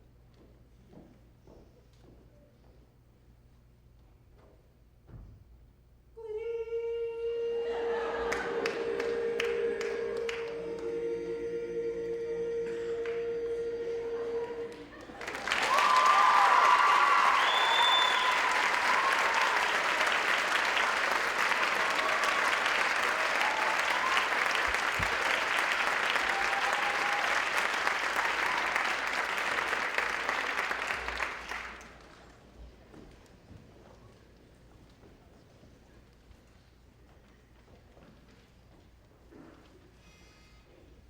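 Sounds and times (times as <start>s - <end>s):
audience cheering: 14.4s - 32.0s
audience applauding: 14.7s - 32.5s.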